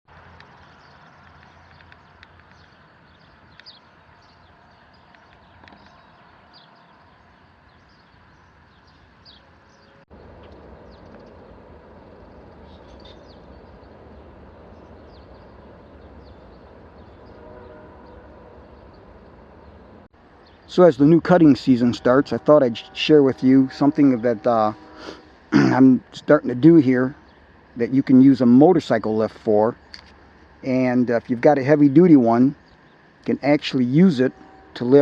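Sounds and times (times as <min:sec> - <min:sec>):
outdoor background noise: 0:00.1 - 0:35.0
short bird chirps: 0:12.6 - 0:13.8.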